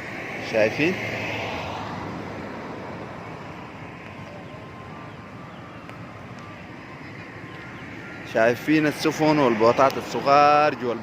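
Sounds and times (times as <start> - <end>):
distant traffic rumble: 0.0 - 11.0.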